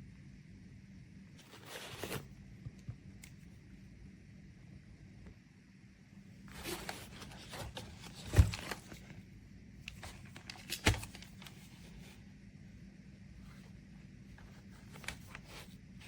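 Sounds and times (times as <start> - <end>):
rustling handling noise: 1.4 - 2.4, 6.4 - 12.3, 13.4 - 16.0.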